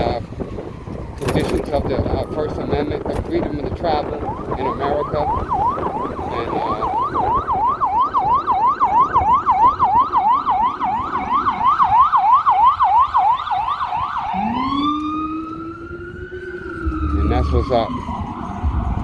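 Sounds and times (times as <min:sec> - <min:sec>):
siren slow rising wail: 0:00.0 - 0:19.0
siren fast yelp: 0:04.0 - 0:19.0.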